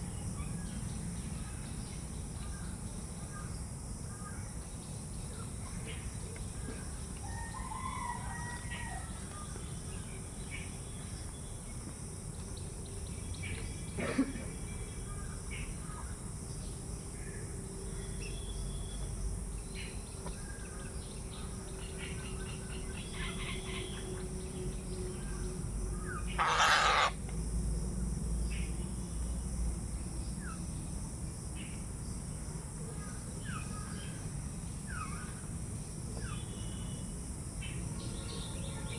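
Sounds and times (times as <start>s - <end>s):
birds chirping: 26.1s - 27.2s
loud harsh bird call: 26.2s - 27.2s.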